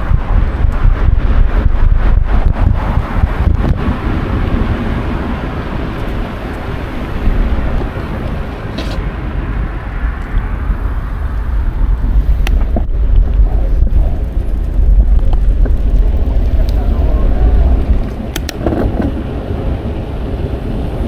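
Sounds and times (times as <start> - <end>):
street traffic noise: 0.0 - 21.0
wind on microphone: 0.0 - 21.0
sharp click: 18.1 - 18.9.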